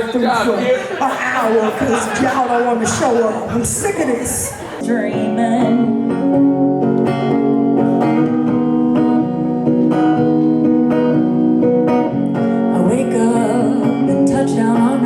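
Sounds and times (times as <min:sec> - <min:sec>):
acoustic guitar strumming: 0:00.0 - 0:15.0
person singing: 0:04.8 - 0:10.2, 0:12.3 - 0:15.0.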